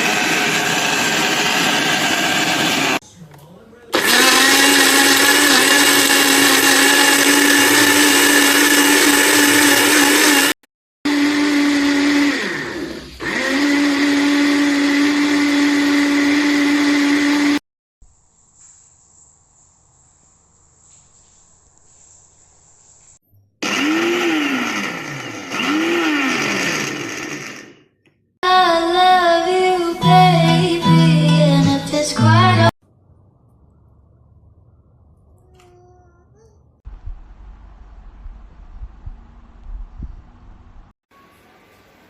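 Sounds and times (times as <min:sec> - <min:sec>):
blender motor humming: 0:00.0 - 0:03.0, 0:04.0 - 0:17.6, 0:23.6 - 0:27.8.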